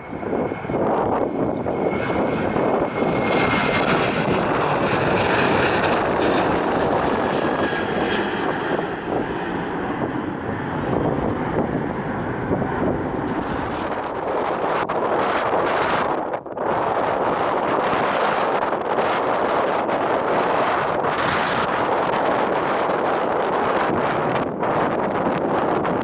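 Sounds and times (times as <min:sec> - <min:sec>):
high steady engine whine: 0:00.0 - 0:14.7
jet engine rush: 0:00.0 - 0:26.0.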